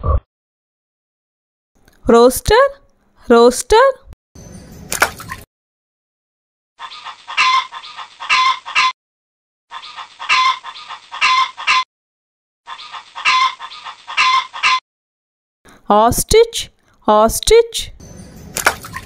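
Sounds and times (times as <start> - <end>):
rooster calling: 6.8 - 9.0, 9.7 - 11.9, 12.7 - 14.8.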